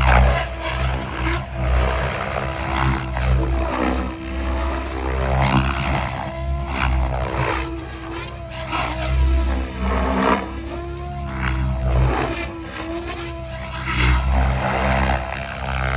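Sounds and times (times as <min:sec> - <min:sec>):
electric motor hum: 0:00.0 - 0:15.9
rotor blade noise: 0:00.0 - 0:15.9.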